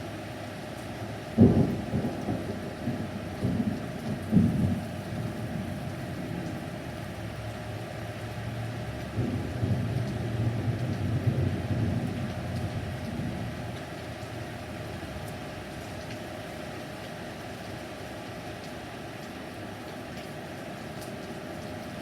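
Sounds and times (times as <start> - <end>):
steady rain: 0.0 - 22.0
low rumble of thunder: 1.3 - 6.8, 9.1 - 13.9.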